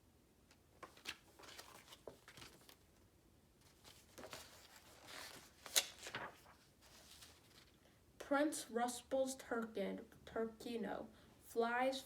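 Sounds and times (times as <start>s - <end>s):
paper rustling and clicks: 0.8s - 2.8s, 3.8s - 7.7s.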